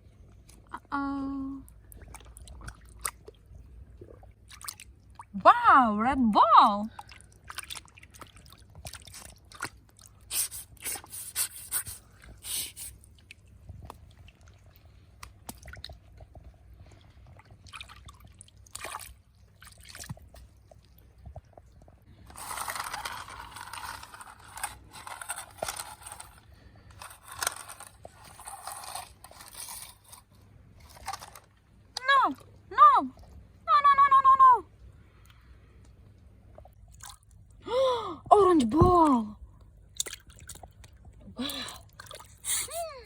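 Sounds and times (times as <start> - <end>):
plastic toys scraping and clicking: 22.2 - 31.5.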